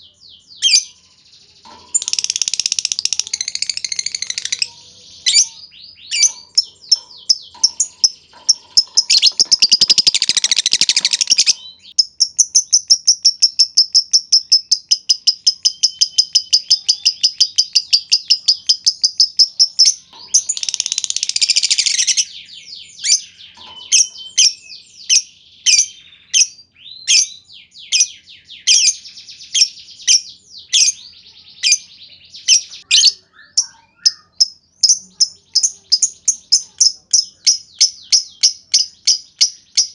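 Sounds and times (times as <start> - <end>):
lovebird chirping and trilling: 0.0 - 39.9.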